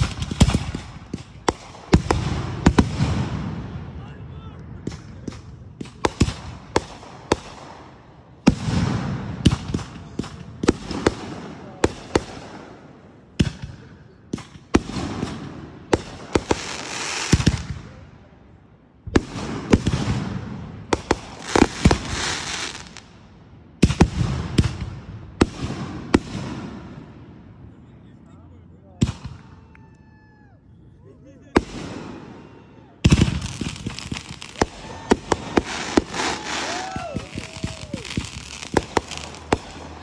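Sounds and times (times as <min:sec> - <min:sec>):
fireworks crackling: 0:00.0 - 0:03.7, 0:14.3 - 0:18.0, 0:19.1 - 0:23.2, 0:33.0 - 0:40.0
fireworks banging: 0:00.0 - 0:03.8, 0:04.8 - 0:18.0, 0:19.0 - 0:23.1, 0:33.0 - 0:40.0.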